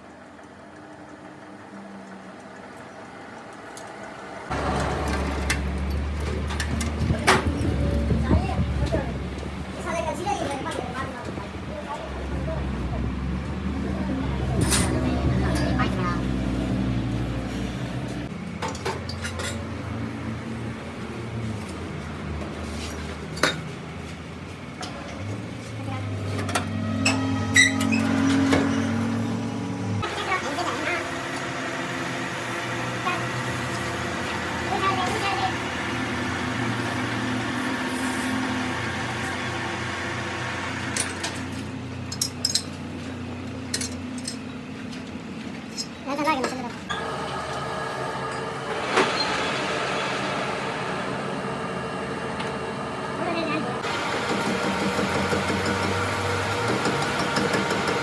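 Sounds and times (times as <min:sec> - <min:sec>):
machine humming: 0:00.3 - 0:09.6, 0:26.6 - 0:41.9, 0:46.9 - 0:58.0
steel pieces clinking: 0:42.1 - 0:42.7.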